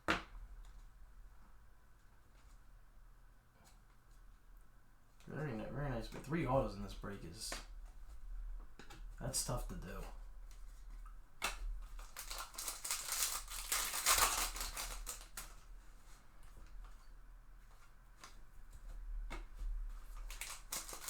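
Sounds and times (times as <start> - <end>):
wrappers rustling and crinkling: 10.4 - 21.0.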